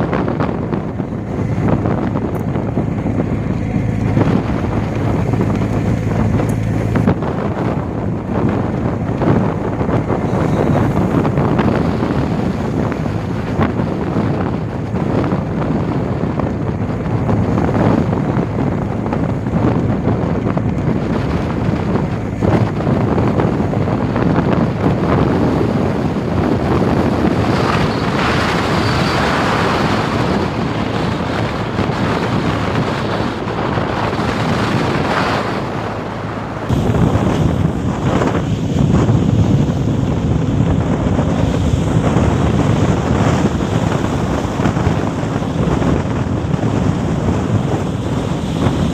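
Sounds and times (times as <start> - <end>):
boat motor running: 0.0 - 48.9
water rushing past hull: 0.0 - 48.9
wind buffeting microphone: 0.0 - 48.9.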